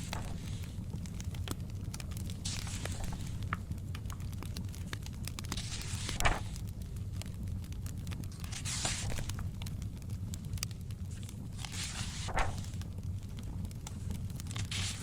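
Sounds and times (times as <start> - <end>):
book page turning: 0.0 - 0.8, 2.2 - 4.3, 5.3 - 6.6, 8.2 - 9.7, 11.2 - 12.9, 13.9 - 15.0
wood fire crackling: 0.0 - 15.0.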